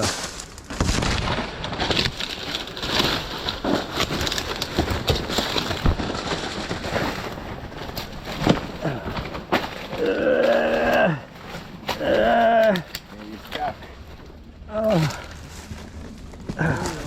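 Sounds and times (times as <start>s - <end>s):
footsteps through dry leaves: 0.0s - 8.3s
branches snapping: 0.0s - 17.0s.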